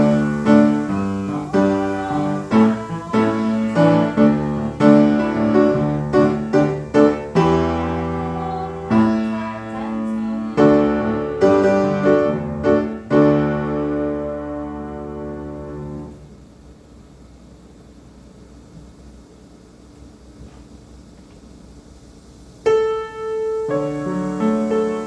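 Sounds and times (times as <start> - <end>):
piano chords: 0.0 - 16.5, 22.7 - 25.0.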